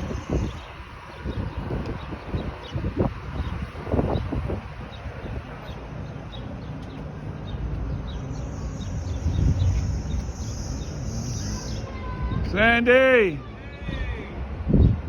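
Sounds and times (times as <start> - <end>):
small bird chirping: 0.0 - 12.0
wind rumble on microphone: 0.0 - 15.0.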